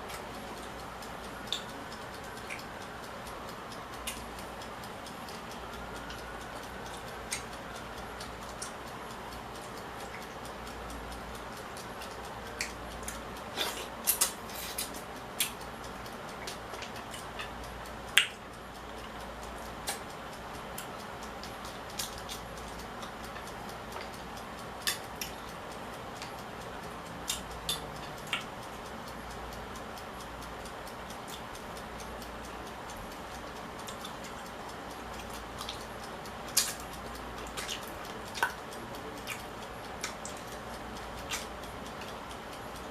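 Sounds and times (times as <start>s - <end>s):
low hiss: 0.0s - 42.9s
clicks and clinks of eating: 11.6s - 19.2s, 20.8s - 24.2s, 32.8s - 42.9s.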